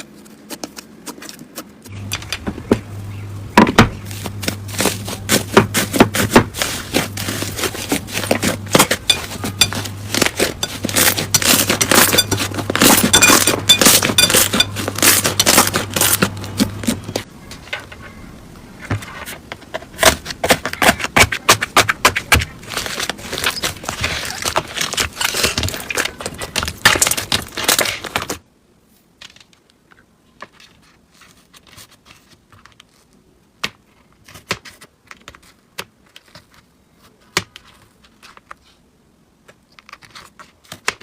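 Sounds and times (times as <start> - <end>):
low steady hum: 0.0 - 34.2
slime crackling and popping: 6.9 - 17.0.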